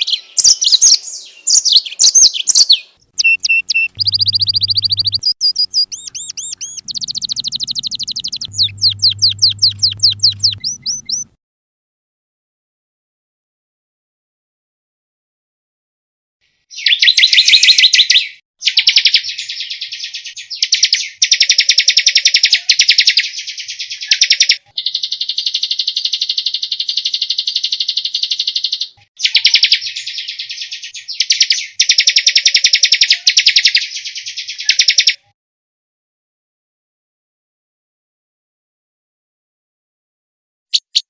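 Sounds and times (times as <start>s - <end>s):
songbird fast trills: 0.0s - 11.3s
songbird buzzing trill: 3.2s - 11.3s.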